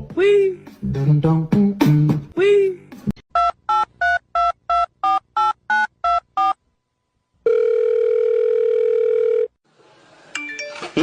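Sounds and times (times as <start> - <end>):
telephone ringing tone: 7.4 - 9.6.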